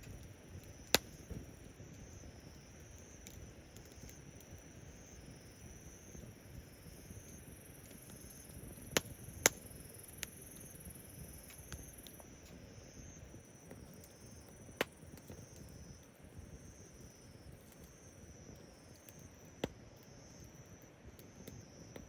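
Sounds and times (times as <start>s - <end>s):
fire popping: 0.0s - 22.0s
wood fire crackling: 0.0s - 22.0s.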